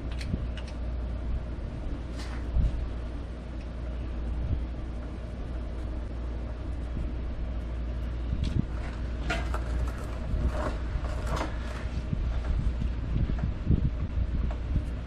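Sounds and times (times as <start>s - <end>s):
steady low hum: 0.0s - 15.0s
clicks and scrapes of connector: 0.1s - 0.8s.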